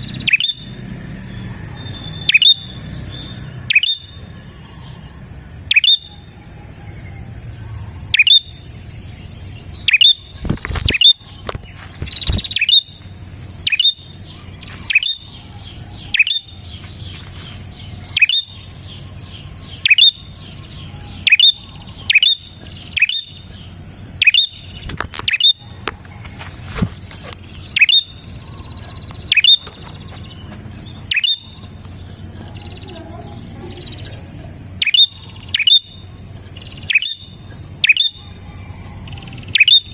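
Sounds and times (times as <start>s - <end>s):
bird chirps sweeping down: 1.7s - 4.2s, 27.6s - 31.6s.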